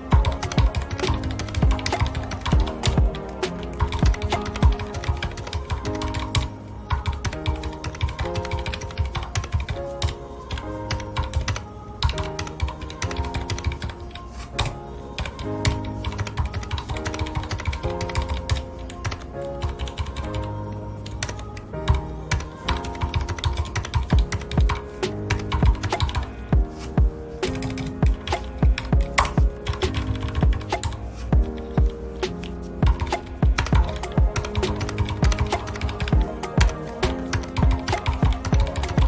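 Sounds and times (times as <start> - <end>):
soft background music: 0.0 - 39.0.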